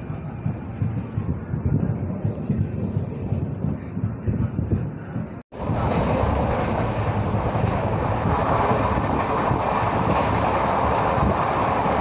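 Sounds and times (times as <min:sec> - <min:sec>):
train running on rails: 0:00.0 - 0:12.0
freight train wagons rushing past: 0:05.5 - 0:12.0.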